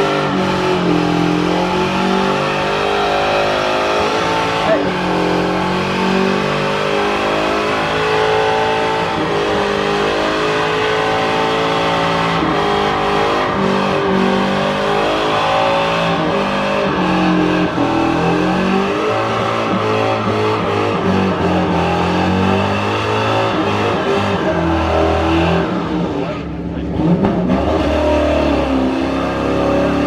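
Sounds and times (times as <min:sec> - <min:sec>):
car engines revving hard: 0:00.0 - 0:30.0.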